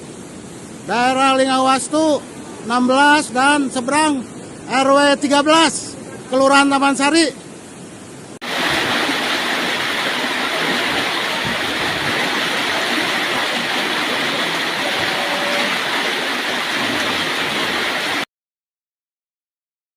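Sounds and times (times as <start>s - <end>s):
floodwater rushing: 8.4s - 18.3s.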